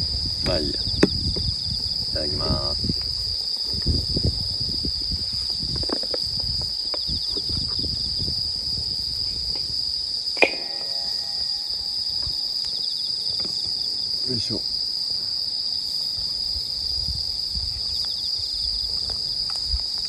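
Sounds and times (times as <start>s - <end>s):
crickets trilling: 0.0s - 20.0s
sharp ringing clink: 10.4s - 12.6s.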